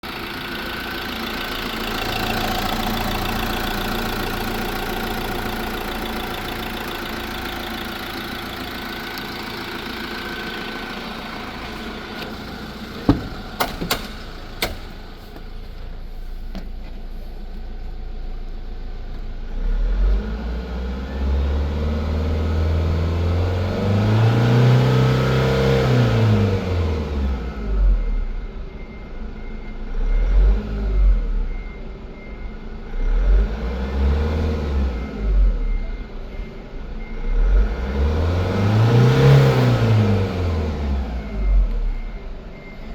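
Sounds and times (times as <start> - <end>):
diesel engine idling: 0.0 - 20.0, 34.9 - 42.9
sharp engine knocks: 13.0 - 15.0.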